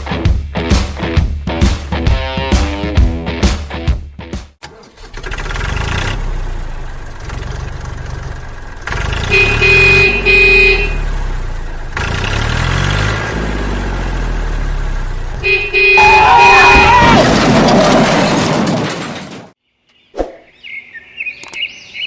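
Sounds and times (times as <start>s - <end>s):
vehicle engine revving: 4.9s - 16.1s
short horn honks: 9.1s - 11.2s, 15.4s - 17.1s.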